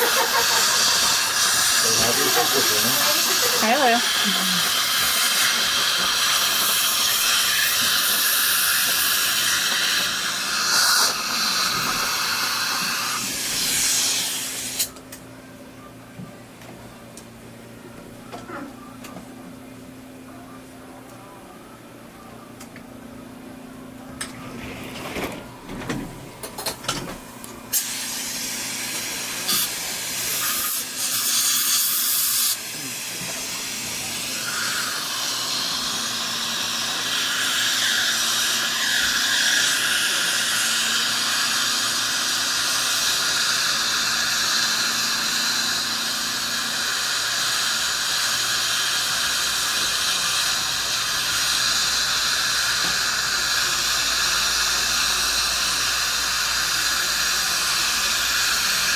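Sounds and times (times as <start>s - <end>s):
dental equipment hissing: 0.0s - 15.0s, 27.7s - 58.9s.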